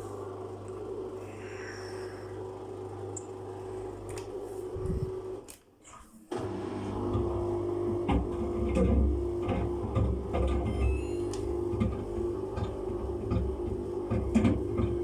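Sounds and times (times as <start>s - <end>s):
washing machine drum running: 6.4s - 15.0s.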